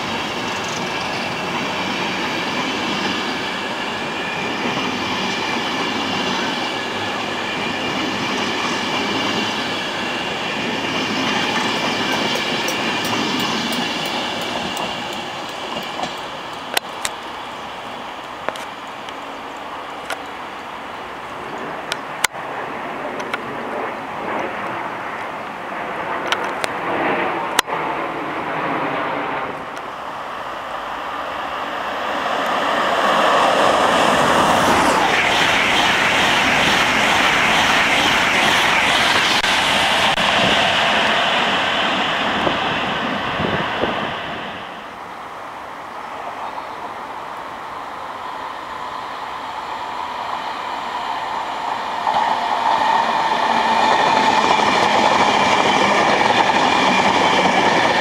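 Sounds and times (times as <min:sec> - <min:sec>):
train passing at speed: 0:00.0 - 0:58.0
sharp track clicks: 0:11.3 - 0:17.3.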